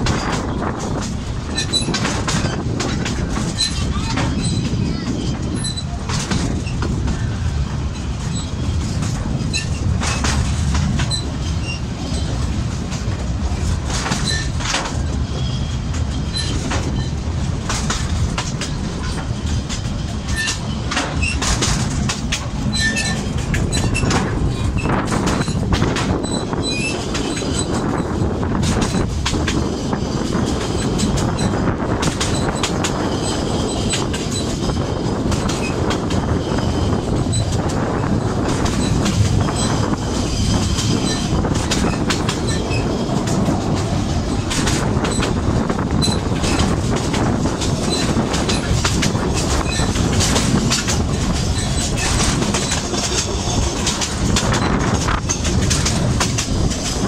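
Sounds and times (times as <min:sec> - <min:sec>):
train wheels rumbling on rails: 0:00.0 - 0:57.0
high-pitched wheel squeals: 0:11.0 - 0:12.4, 0:20.3 - 0:21.5, 0:22.7 - 0:25.6, 0:38.7 - 0:43.0.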